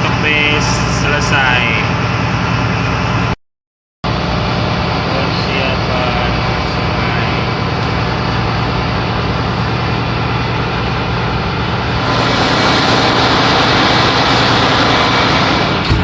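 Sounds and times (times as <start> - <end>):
ship engine hum: 0.0 - 3.4, 4.0 - 16.0
loud wash of noise: 4.1 - 16.0.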